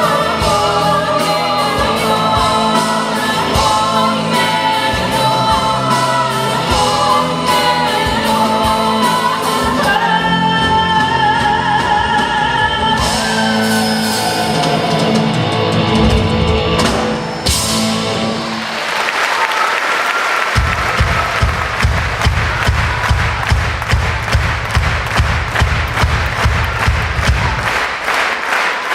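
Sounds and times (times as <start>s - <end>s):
woman singing: 0.0s - 14.8s
live band playing: 0.0s - 19.5s, 20.3s - 28.0s
audience applause: 18.0s - 28.9s.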